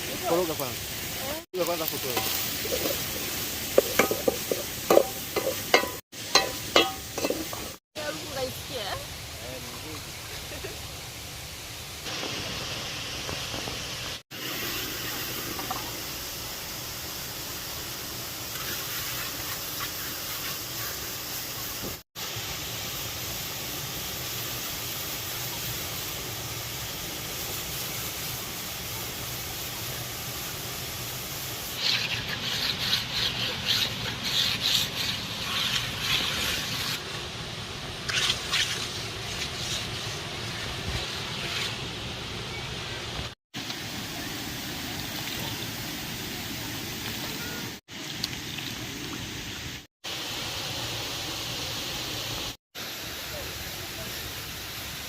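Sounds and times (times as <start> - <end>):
irregular crackling or scraping: 31.8 - 37.0, 38.0 - 42.0.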